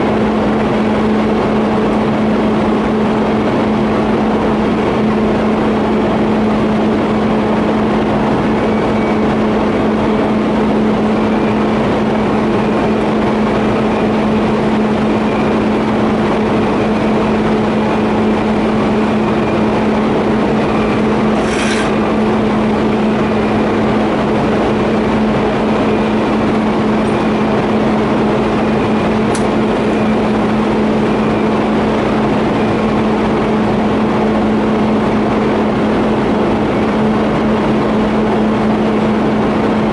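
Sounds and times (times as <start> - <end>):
welding arc buzzing: 21.1 - 22.3.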